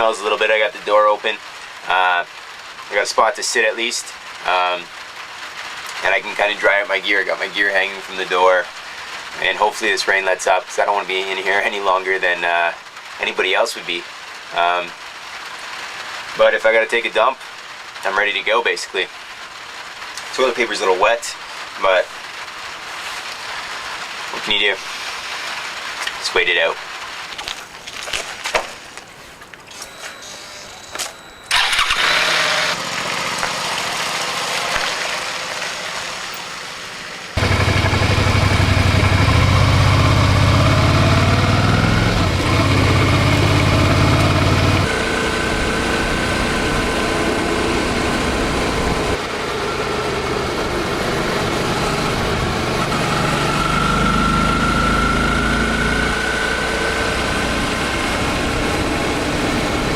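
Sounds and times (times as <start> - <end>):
motorcycle engine running: 37.4 - 59.9.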